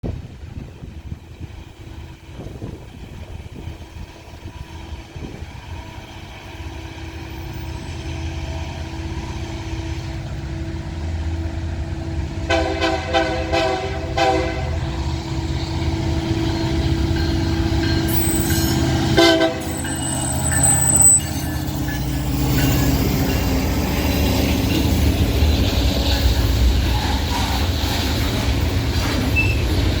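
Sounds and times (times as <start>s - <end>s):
diesel locomotive rumble: 0.0s - 30.0s
train air horn blasts: 12.4s - 14.8s, 18.9s - 20.2s
thin high squeal: 18.1s - 19.0s, 19.6s - 25.0s.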